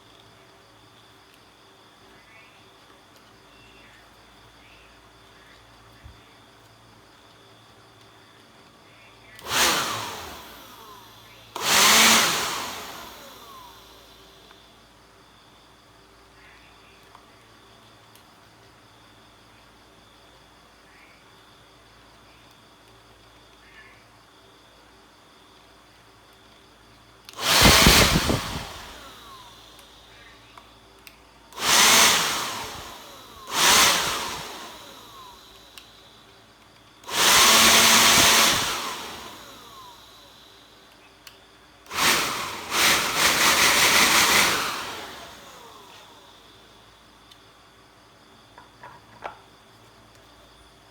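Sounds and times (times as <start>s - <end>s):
electric blower spinning: 9.4s - 14.8s, 27.3s - 30.6s, 31.5s - 36.4s, 37.0s - 41.0s, 41.8s - 47.0s.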